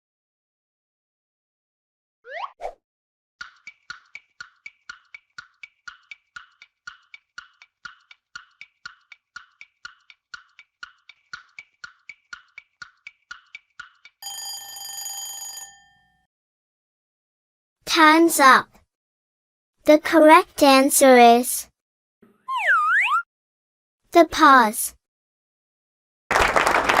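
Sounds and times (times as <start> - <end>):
countdown timer ticking: 3.4 - 14.3
ringing alarm tone: 14.2 - 16.2.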